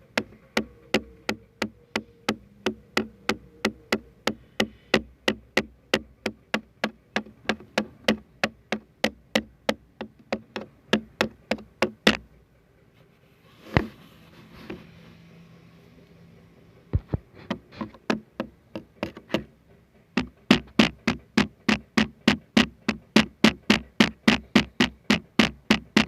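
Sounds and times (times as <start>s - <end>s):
tapping on a surface: 0.2s - 12.2s, 16.9s - 19.5s, 20.2s - 26.0s.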